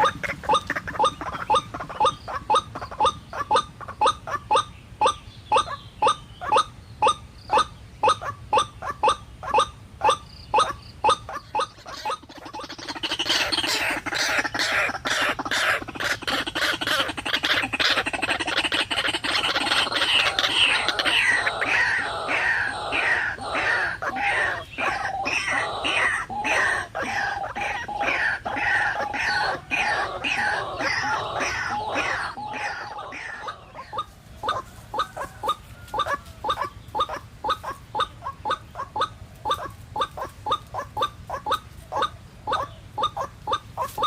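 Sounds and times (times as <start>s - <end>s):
bird calling harsh repeated notes: 0.0s - 35.2s.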